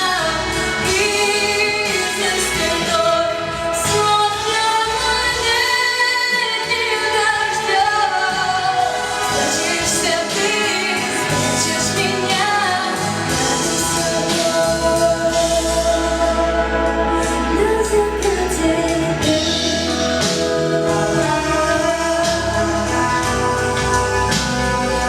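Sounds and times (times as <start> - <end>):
woman singing: 0.0 - 23.9
pop backing track: 0.0 - 25.0.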